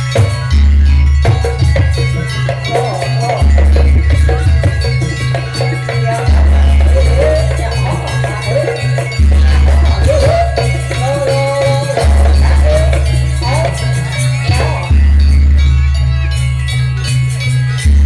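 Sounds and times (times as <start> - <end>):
drums: 0.0 - 15.7
clanking metal percussion: 0.0 - 18.0
wavering melody line: 0.0 - 18.0.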